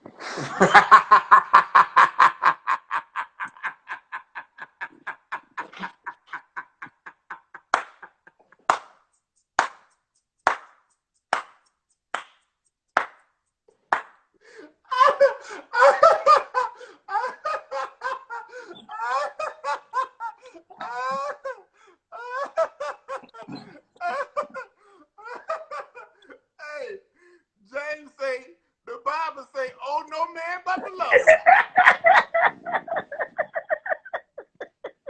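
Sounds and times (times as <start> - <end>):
person laughing hard: 0.1 - 8.6, 14.9 - 27.0, 30.7 - 35.0.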